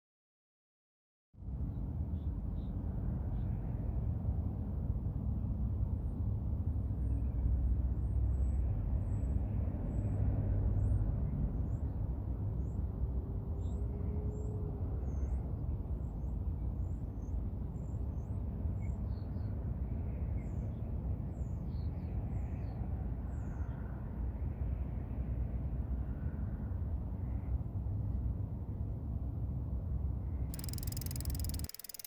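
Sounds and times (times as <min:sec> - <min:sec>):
faint high chirps: 0:30.6 - 0:32.0.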